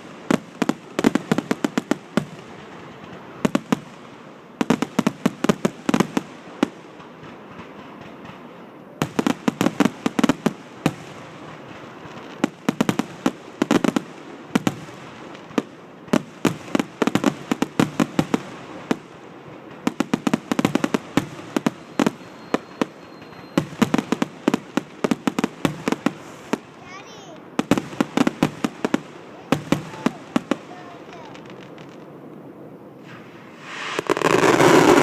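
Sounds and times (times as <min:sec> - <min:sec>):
fireworks bangs in rapid volleys: 0:00.0 - 0:35.0.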